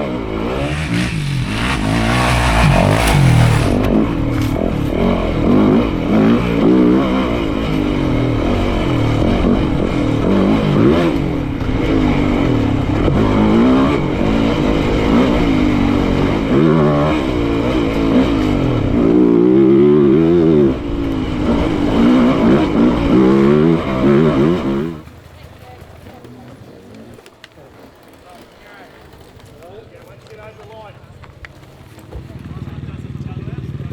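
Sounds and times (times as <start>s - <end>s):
dirt bike engine revving: 0.0s - 26.8s.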